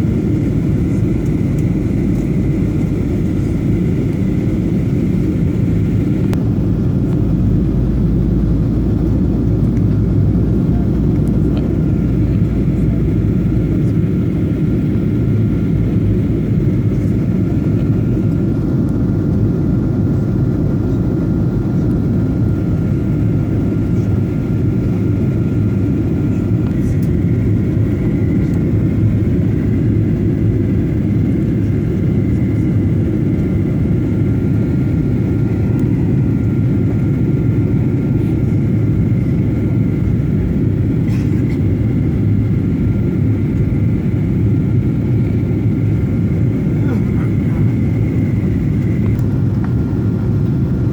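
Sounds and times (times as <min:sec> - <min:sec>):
airliner engine rumble: 0:00.0 - 0:50.9
faint steady whine: 0:00.0 - 0:50.9.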